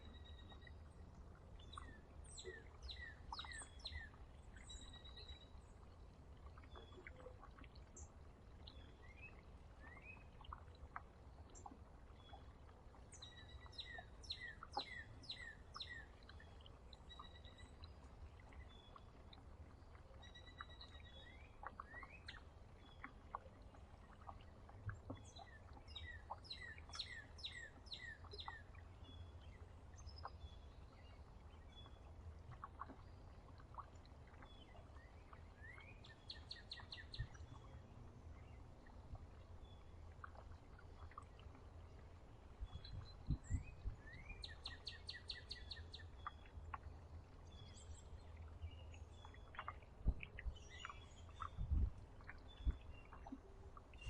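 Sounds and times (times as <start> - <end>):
songbirds calling faintly: 0.0 - 54.0.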